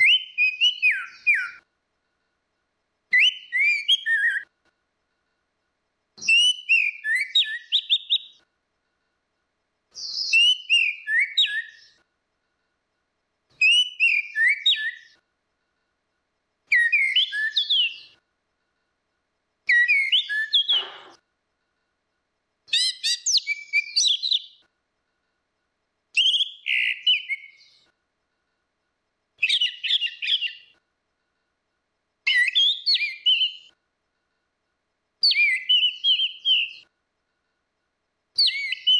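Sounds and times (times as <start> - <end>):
thrush singing whistled phrases: 0.0 - 1.7, 3.1 - 4.5, 6.2 - 8.4, 10.0 - 12.0, 13.6 - 15.2, 16.7 - 18.2, 19.7 - 21.2, 22.7 - 24.6, 26.2 - 27.9, 29.4 - 30.8, 32.2 - 33.8, 35.2 - 36.9, 38.4 - 38.9.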